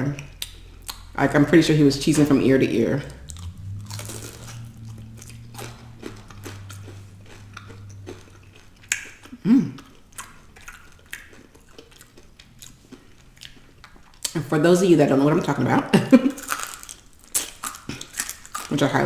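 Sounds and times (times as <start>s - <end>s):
chewing and biting food: 0.0s - 1.5s, 3.0s - 14.4s, 16.3s - 19.0s
low mouth sound: 2.2s - 9.9s.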